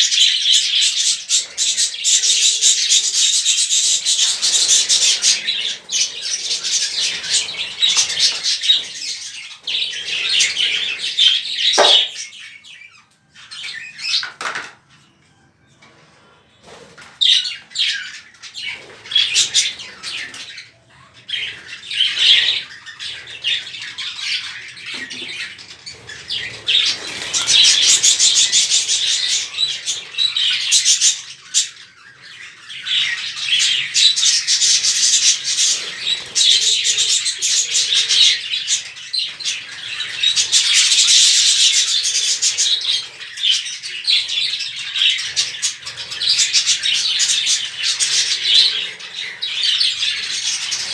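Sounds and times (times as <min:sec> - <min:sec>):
budgerigars chattering: 0:00.0 - 0:12.8, 0:17.2 - 0:50.9
wings flapping: 0:11.8 - 0:12.2.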